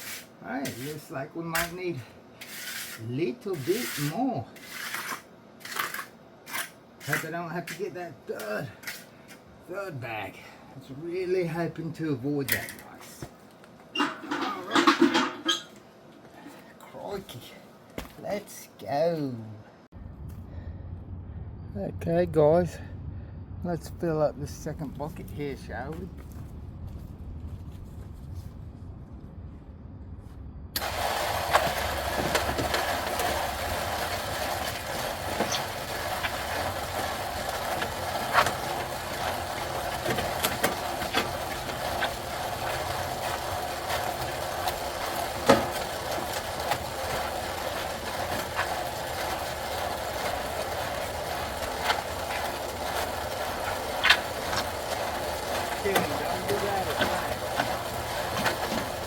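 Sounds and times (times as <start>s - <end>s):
concrete mixer churning: 14.0s - 15.7s, 30.8s - 59.0s.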